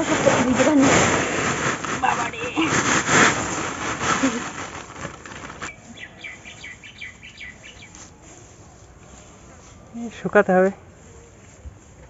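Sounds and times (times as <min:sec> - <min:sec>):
rustling noise: 0:00.0 - 0:12.0
small bird chirping: 0:05.7 - 0:08.0.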